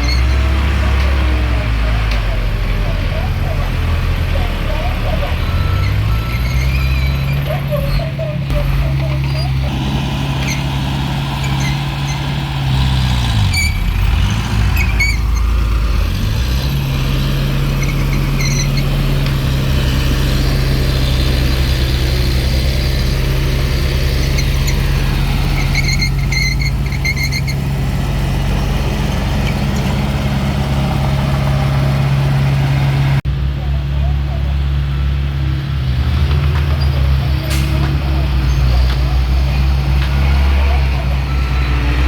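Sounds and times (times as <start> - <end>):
diesel engine running: 0.0 - 42.0
short high squeaks: 5.4 - 9.7, 11.4 - 12.4, 13.4 - 14.0, 14.8 - 15.5, 17.8 - 18.9, 25.6 - 27.6.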